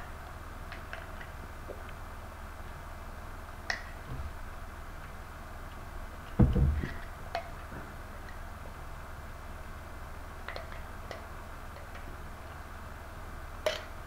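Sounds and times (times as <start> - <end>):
dull thump: 4.1 - 4.4, 6.4 - 7.1.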